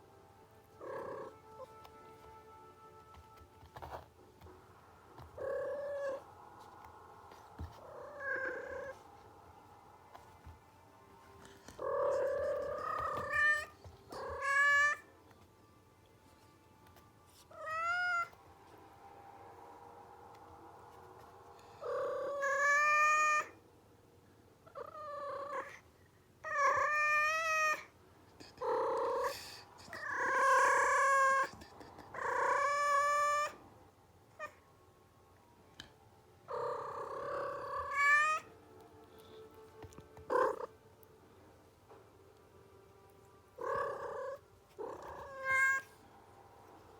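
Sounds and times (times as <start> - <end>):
cat yowling: 7.6 - 9.1, 11.7 - 15.1, 17.5 - 18.4, 21.8 - 23.6, 26.4 - 27.9, 28.6 - 31.5, 32.1 - 33.6, 36.5 - 38.5, 40.2 - 40.8, 43.6 - 46.0.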